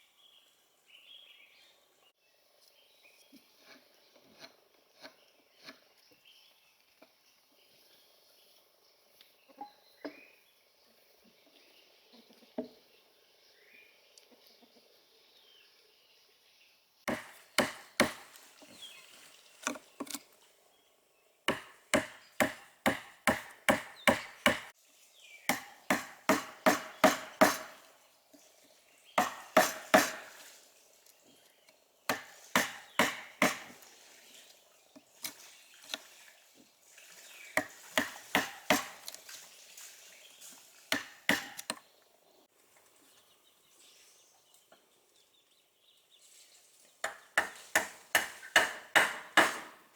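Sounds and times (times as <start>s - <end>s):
wood being chopped: 17.1s - 18.4s, 21.5s - 24.7s, 25.5s - 27.8s, 29.2s - 30.3s, 32.1s - 33.8s, 37.6s - 39.0s, 40.9s - 41.8s, 47.0s - 49.8s.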